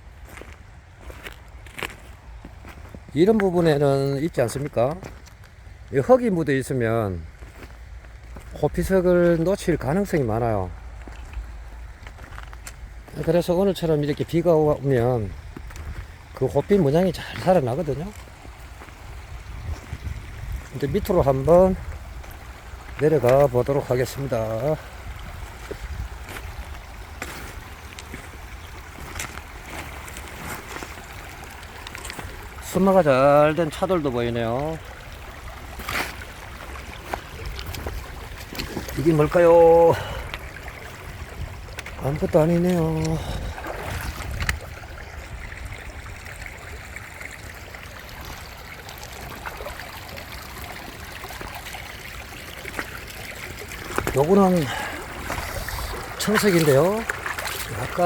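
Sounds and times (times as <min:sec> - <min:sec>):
footsteps on rocks and gravel: 0:00.0 - 0:03.8, 0:04.6 - 0:06.0, 0:07.1 - 0:09.5, 0:10.4 - 0:23.7, 0:24.5 - 0:32.8, 0:35.3 - 0:44.7, 0:53.6 - 0:58.0
flowing river water: 0:00.0 - 0:58.0
rain-like hiss: 0:00.0 - 0:58.0
wind rumble on microphone: 0:18.5 - 0:22.6, 0:24.9 - 0:27.1, 0:40.3 - 0:42.0, 0:43.1 - 0:46.3.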